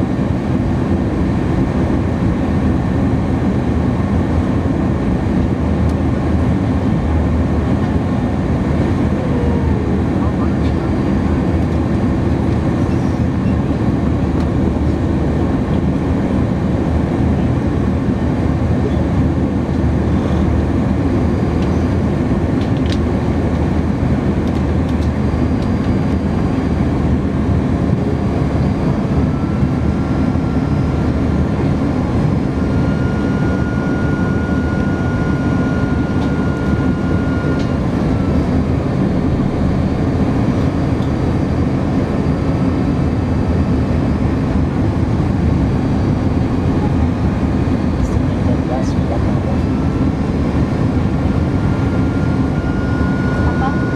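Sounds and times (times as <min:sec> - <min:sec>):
airliner cabin roar: 0:00.0 - 0:53.9
faint whine: 0:24.5 - 0:53.9.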